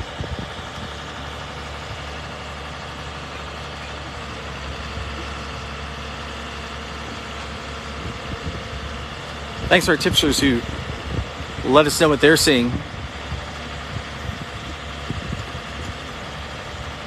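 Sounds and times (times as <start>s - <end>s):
heavy vehicle engine idling: 0.0s - 17.0s.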